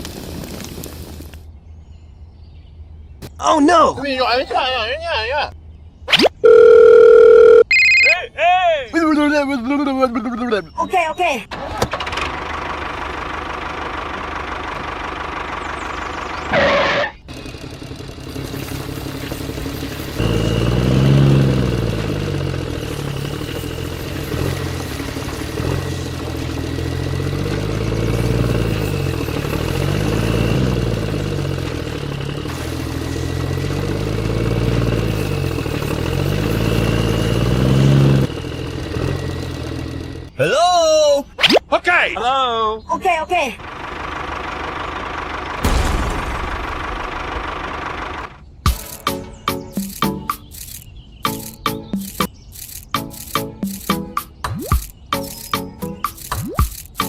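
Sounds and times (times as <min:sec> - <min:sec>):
engine running: 0:11.5 - 0:40.4, 0:43.6 - 0:57.0.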